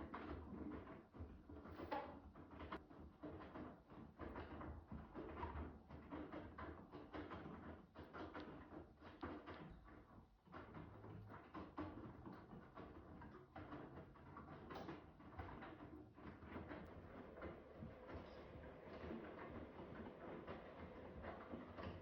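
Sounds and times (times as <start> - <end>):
clothes tumbling in washing machine: 10.5 - 22.0.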